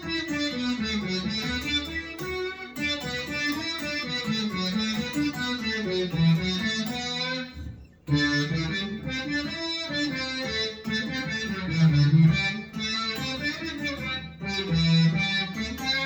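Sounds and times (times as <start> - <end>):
brass-like synth guitar phrase: 0.0 - 16.0.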